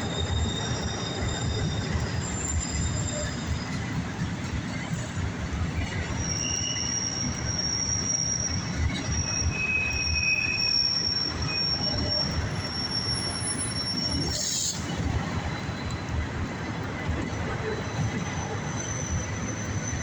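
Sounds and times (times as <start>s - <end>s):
high-pitched wheel squeal: 0.0s - 4.0s, 5.9s - 15.0s, 17.6s - 20.0s.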